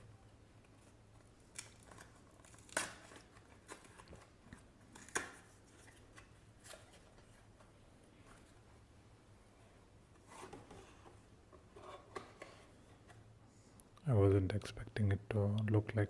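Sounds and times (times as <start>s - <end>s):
soap packaging rustling and tearing: 0.6s - 7.7s.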